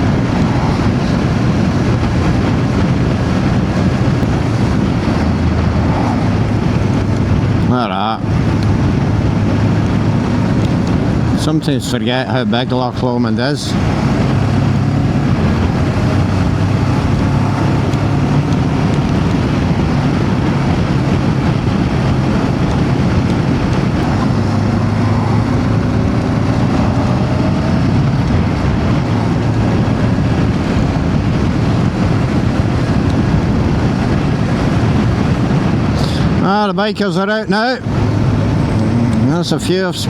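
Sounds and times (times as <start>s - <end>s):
motorcycle engine running: 0.0s - 36.4s, 37.4s - 40.0s
wind noise on microphone: 0.0s - 40.0s.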